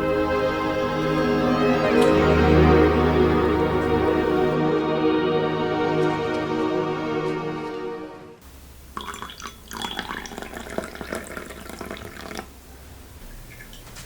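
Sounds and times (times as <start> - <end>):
background music: 0.0 - 8.4
water running from tap: 9.0 - 12.5.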